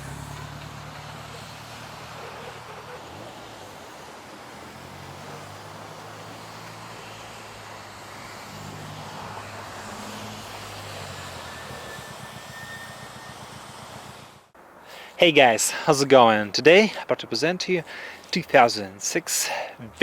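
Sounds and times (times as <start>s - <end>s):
vehicle engine running: 0.0s - 14.6s.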